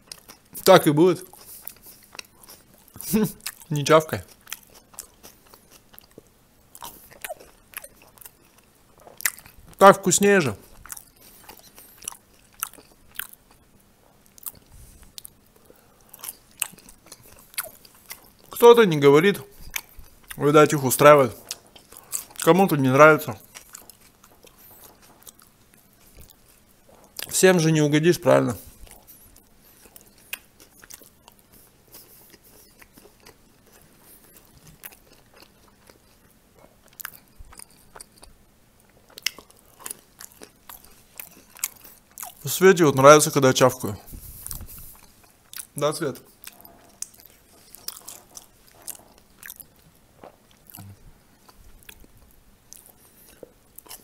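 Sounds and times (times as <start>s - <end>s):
bites: 0.0s - 9.8s, 14.2s - 18.6s, 21.0s - 22.8s, 39.0s - 42.4s, 44.1s - 52.1s
person chewing with wet smacking: 0.0s - 9.8s, 10.5s - 27.4s, 28.6s - 42.6s, 43.8s - 54.0s.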